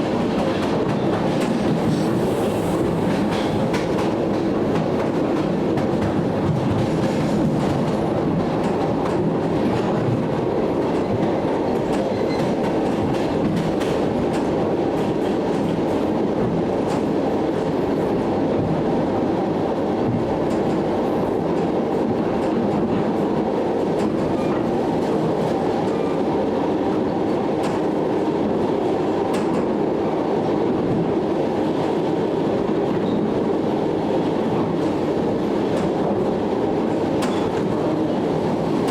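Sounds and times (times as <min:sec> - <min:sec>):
rail joint clicks: 0:00.3 - 0:17.8, 0:20.0 - 0:20.9, 0:22.4 - 0:26.2, 0:27.3 - 0:28.0, 0:29.2 - 0:29.8, 0:34.6 - 0:36.2, 0:36.8 - 0:38.0, 0:38.6 - 0:38.9.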